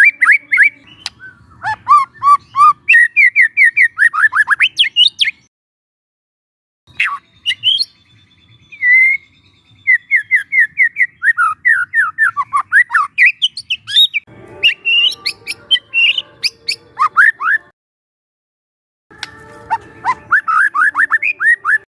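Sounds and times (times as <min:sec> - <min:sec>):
bird singing clear whistles: 0:00.0 - 0:05.5, 0:06.9 - 0:17.7.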